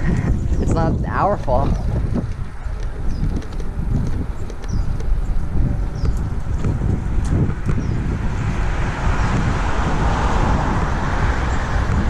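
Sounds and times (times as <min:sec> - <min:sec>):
wind rumbling on microphone: 0:00.0 - 0:12.0
car passing by: 0:07.5 - 0:12.0.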